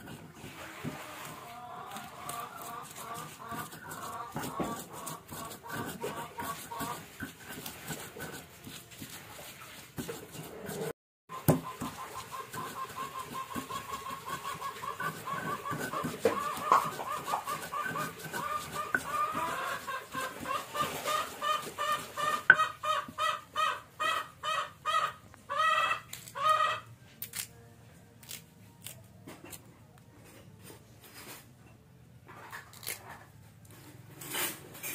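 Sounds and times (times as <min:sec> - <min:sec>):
chicken clucking: 0:01.1 - 0:07.2, 0:11.3 - 0:26.9.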